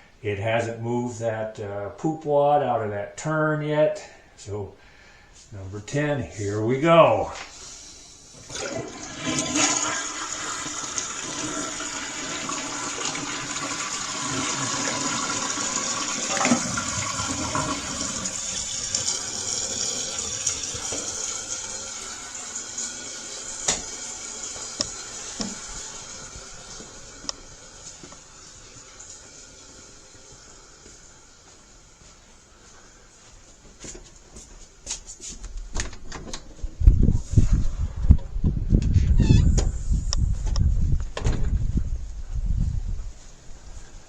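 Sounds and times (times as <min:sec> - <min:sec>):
toilet flushing: 0:07.6 - 0:31.6.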